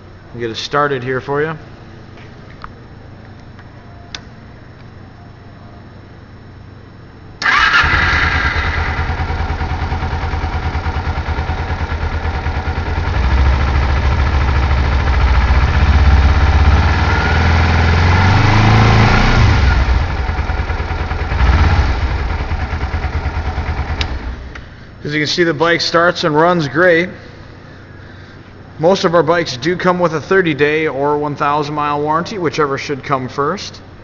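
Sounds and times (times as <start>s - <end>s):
engine revving: 7.4s - 11.3s, 13.0s - 20.3s, 21.3s - 23.8s
motorcycle engine starting and idling: 7.4s - 24.7s.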